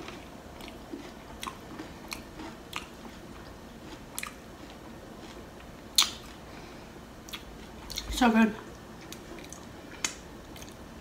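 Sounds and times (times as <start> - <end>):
person chewing: 0.0 - 6.5, 7.2 - 10.9.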